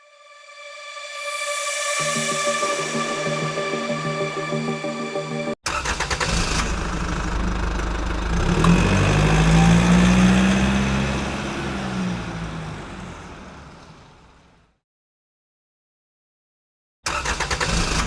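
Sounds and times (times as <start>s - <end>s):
engine humming: 6.6s - 14.1s.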